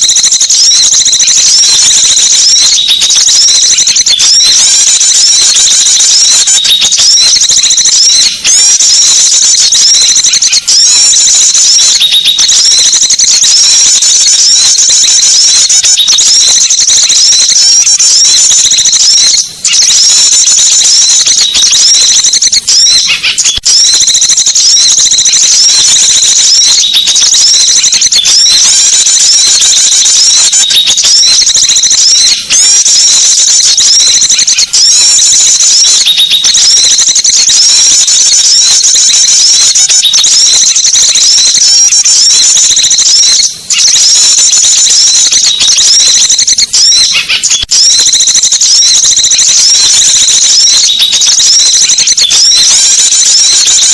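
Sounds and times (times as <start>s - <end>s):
small birds twittering: 22.9s - 23.6s.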